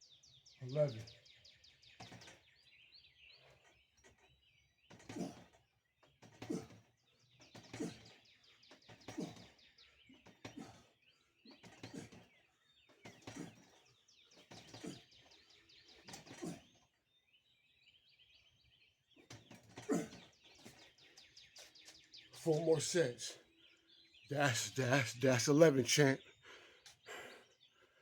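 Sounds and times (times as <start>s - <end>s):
faint birds chirping: 0.0s - 28.0s
man grunting with effort: 7.8s - 8.0s, 19.9s - 20.2s.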